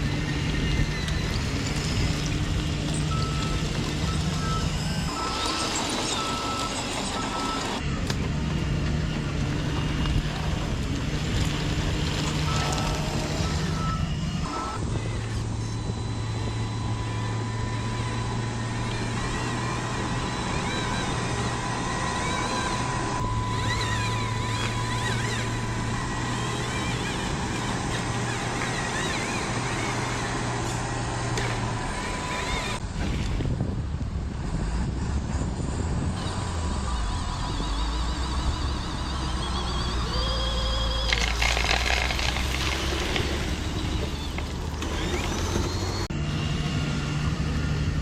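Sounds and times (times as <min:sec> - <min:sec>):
reversing beeps: 0:02.9 - 0:07.8, 0:12.2 - 0:27.8, 0:36.6 - 0:41.7
toy machine motor hum: 0:36.2 - 0:46.1.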